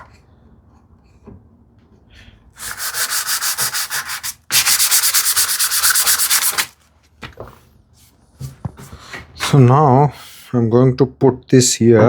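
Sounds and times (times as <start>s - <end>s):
sandpaper rubbing on wood: 2.6s - 6.7s.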